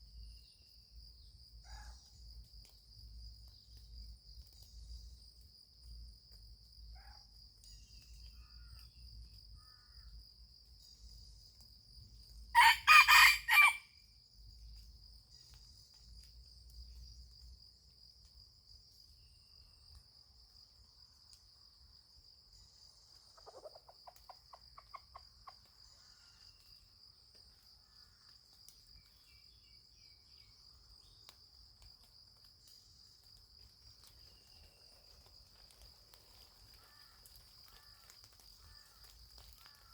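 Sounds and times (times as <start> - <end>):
insects droning: 0.0 - 39.9
rooster crowing: 12.6 - 13.9.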